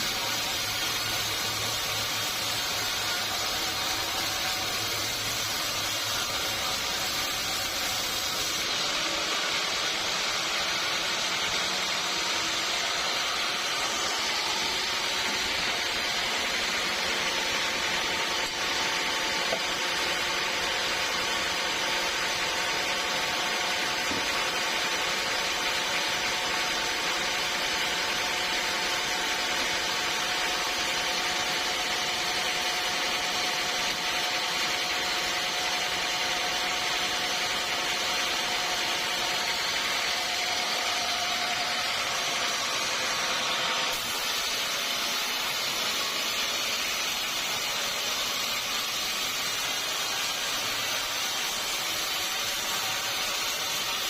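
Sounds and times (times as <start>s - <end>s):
steady whine: 0.0s - 25.8s
saw cutting through log: 0.0s - 54.0s.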